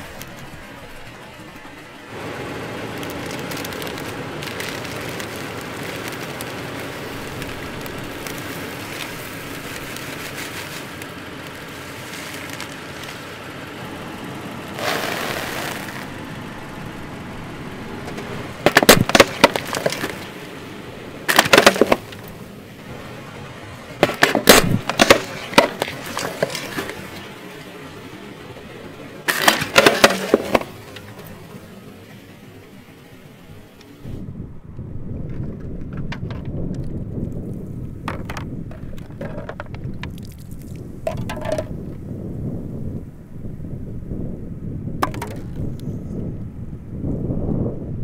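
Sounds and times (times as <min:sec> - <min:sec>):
crisps rustling: 0:02.2 - 0:13.5, 0:14.7 - 0:16.2, 0:18.6 - 0:20.4
tyre crushing crisps: 0:02.4 - 0:13.3.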